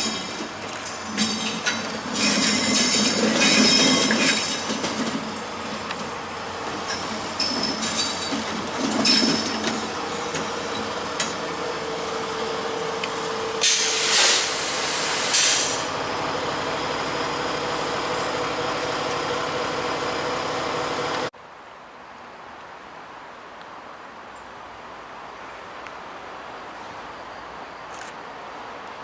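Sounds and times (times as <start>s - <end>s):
train running noise: 0.0s - 21.3s
air brakes hissing: 13.6s - 16.0s.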